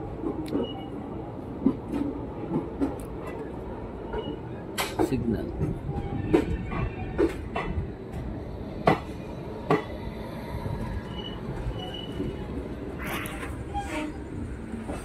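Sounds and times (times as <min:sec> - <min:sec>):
train wheels rumbling on track: 0:00.0 - 0:15.0
faint wheel squeal: 0:11.0 - 0:12.4.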